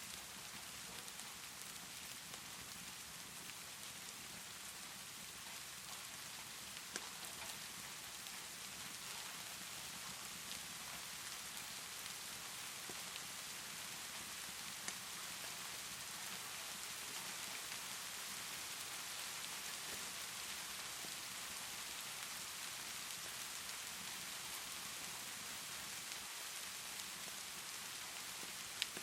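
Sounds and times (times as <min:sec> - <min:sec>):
steady rainfall hiss: 0:00.0 - 0:29.0
crackling fire pops: 0:06.7 - 0:08.3, 0:14.7 - 0:15.2, 0:28.3 - 0:29.0.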